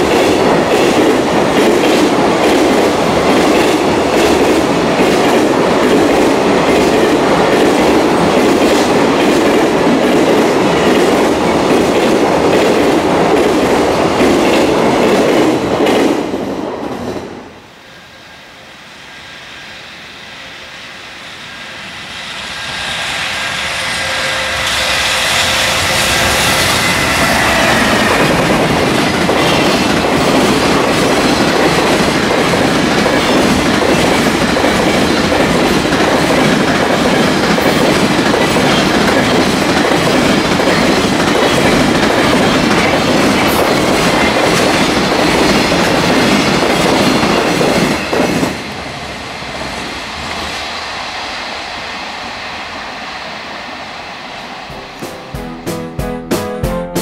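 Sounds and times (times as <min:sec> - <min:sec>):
freight train clattering over rail joints: 0:25.4 - 0:48.6.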